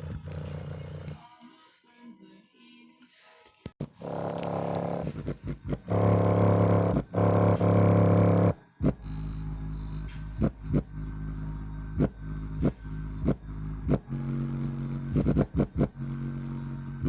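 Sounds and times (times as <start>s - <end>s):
sharp thumping beat: 4.0s - 9.4s, 10.0s - 11.2s, 12.0s - 16.0s
loud buzzy bass notes: 4.0s - 17.0s.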